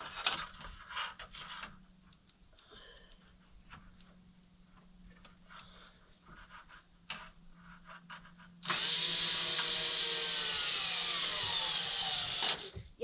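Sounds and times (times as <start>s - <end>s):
power drill running: 8.6s - 12.8s.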